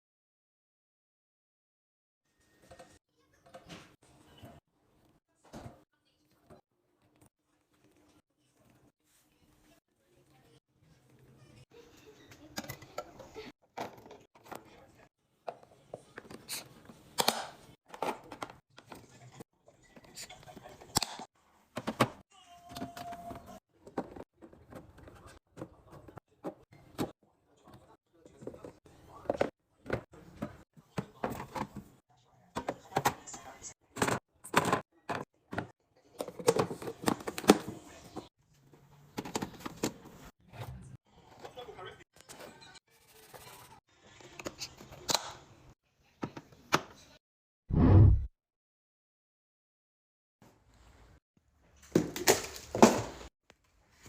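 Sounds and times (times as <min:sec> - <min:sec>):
containers clicking and knocking: 0:32.6 - 0:37.8.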